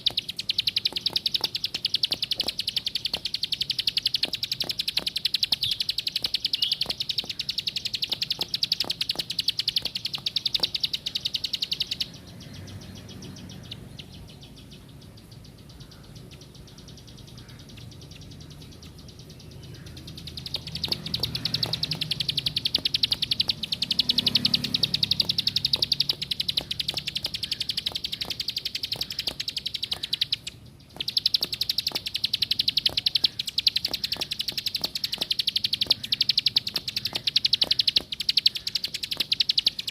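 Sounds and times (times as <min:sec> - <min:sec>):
bird chattering trill: 0:00.0 - 0:39.9.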